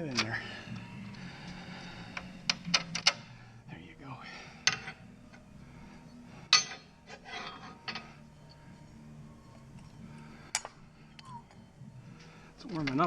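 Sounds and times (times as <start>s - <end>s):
steady low hum: 0.0s - 13.0s
tools clinking against metal: 6.5s - 8.1s.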